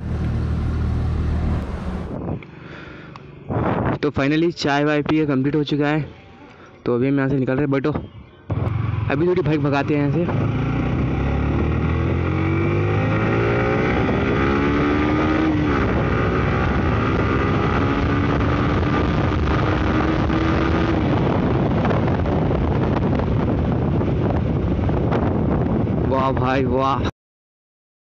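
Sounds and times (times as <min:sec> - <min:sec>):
motorcycle engine accelerating: 0:00.0 - 0:03.9, 0:08.4 - 0:26.0
wind rushing over microphone: 0:01.0 - 0:02.5, 0:03.4 - 0:05.6, 0:07.4 - 0:27.1.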